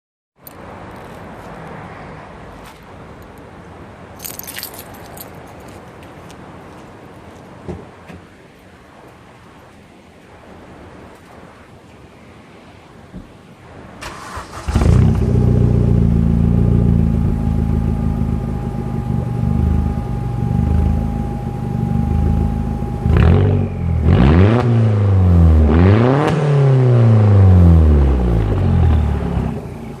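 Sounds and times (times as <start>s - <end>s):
car engine idling and revving: 14.1s - 30.0s.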